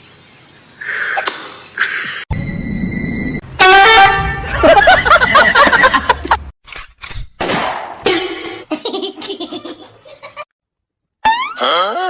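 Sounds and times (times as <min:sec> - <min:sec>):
people laughing: 0:04.5 - 0:06.5, 0:08.7 - 0:10.5.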